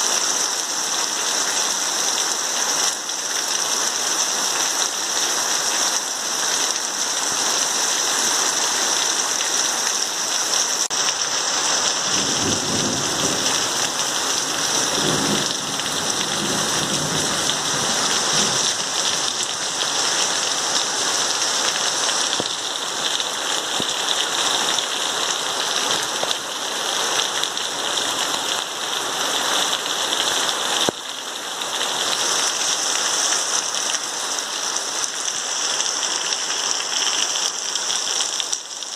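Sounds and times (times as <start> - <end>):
heavy rain pouring: 0.0 - 38.9
thunder rumbling: 12.0 - 18.8.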